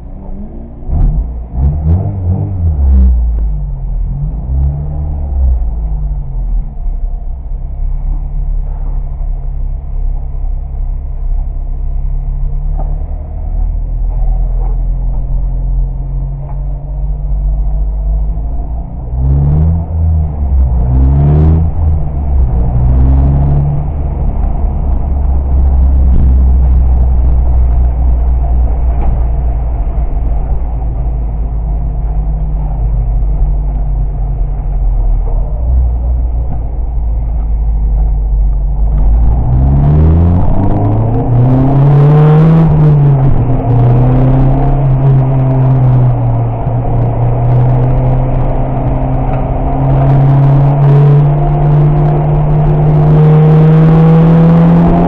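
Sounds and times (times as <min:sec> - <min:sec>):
car engine revving from inside cabin: 0:00.2 - 0:05.6, 0:18.3 - 0:29.3, 0:38.9 - 0:55.0.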